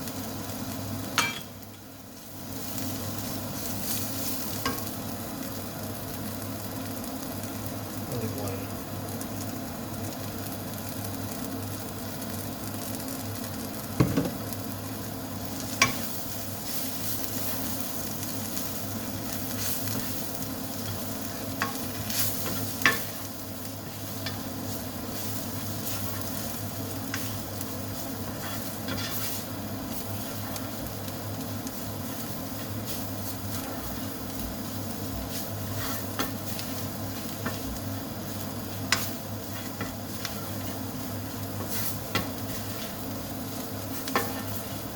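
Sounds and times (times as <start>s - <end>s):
food sizzling in a pan: 0.0s - 44.9s
utensil knocking against pan: 14.0s - 14.4s.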